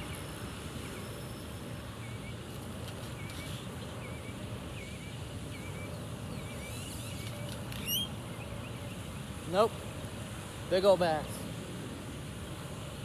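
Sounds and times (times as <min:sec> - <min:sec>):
bird chirping: 0:03.2 - 0:09.0.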